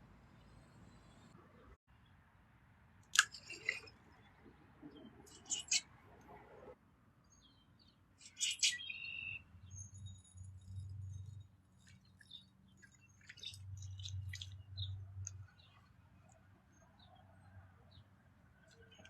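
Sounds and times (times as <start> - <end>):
small birds chirping: 3.2 - 6.0, 7.2 - 19.0.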